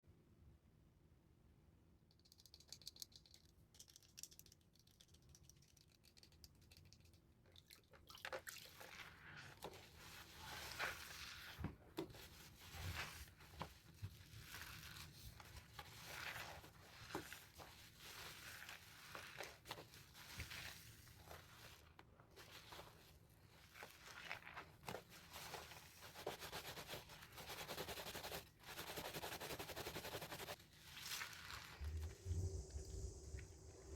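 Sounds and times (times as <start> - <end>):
wet soap squishing by hand: 6.8 - 27.8, 30.4 - 31.9.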